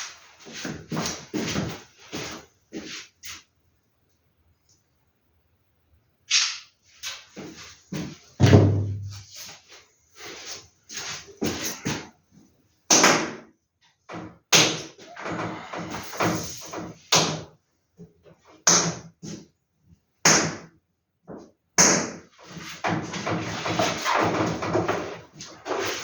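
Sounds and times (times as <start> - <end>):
sharp slaps of paper posters: 6.3 - 6.7, 12.9 - 13.5, 14.1 - 17.6, 18.6 - 19.1, 20.2 - 20.8, 21.8 - 26.0.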